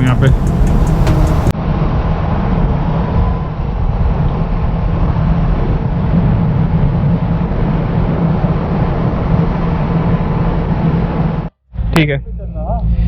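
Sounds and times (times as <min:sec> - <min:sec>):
motorcycle engine cruising: 0:00.0 - 0:01.5
wind and road noise: 0:00.0 - 0:11.5.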